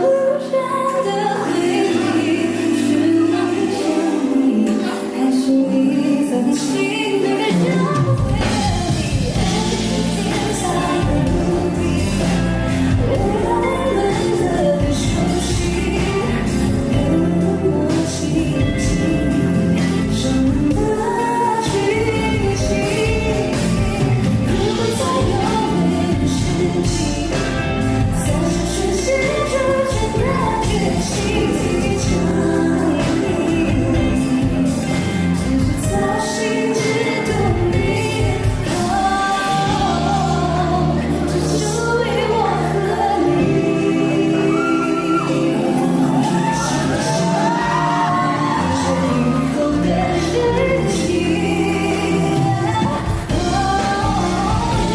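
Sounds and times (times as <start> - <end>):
live pop band: 0.0 - 54.9
woman singing: 0.0 - 54.9
bass and drums: 7.9 - 54.9.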